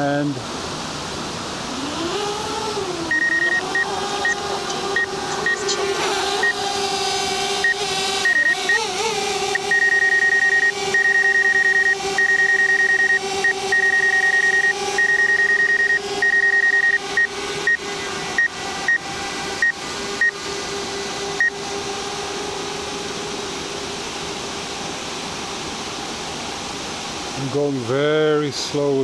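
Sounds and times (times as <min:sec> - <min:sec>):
drone propellers humming: 0:00.0 - 0:29.0
rapid high electronic beeps: 0:03.1 - 0:04.4, 0:05.0 - 0:05.7, 0:06.4 - 0:06.6, 0:07.6 - 0:08.8, 0:09.5 - 0:17.8.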